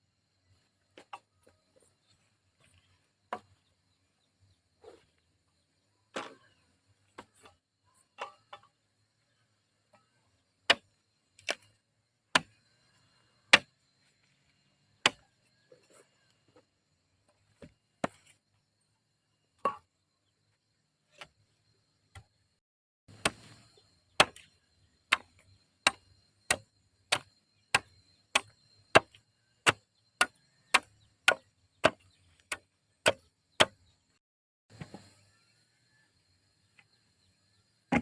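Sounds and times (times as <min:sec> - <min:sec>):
blade chopping wood: 0:13.5 - 0:13.7, 0:23.1 - 0:33.9.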